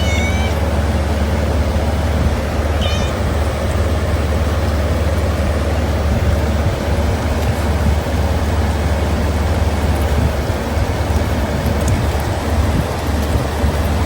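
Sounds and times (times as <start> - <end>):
cat meowing: 0.0 - 0.7, 2.7 - 3.5
steady low rumble: 0.0 - 14.0.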